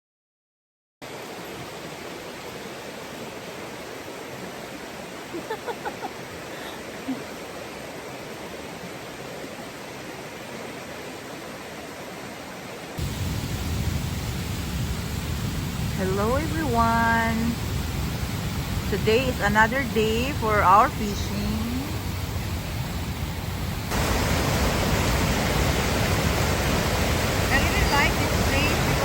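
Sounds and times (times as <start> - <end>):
river rapids rushing: 23.9 - 29.0.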